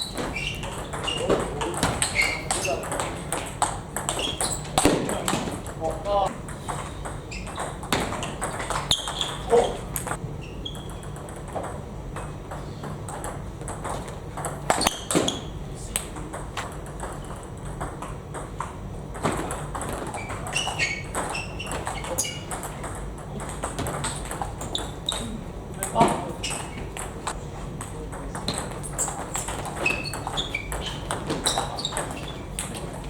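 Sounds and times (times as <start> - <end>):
short high squeaks: 0.0 - 3.3, 4.1 - 4.8, 7.3 - 7.9, 8.6 - 9.8, 20.1 - 22.7, 28.9 - 32.5.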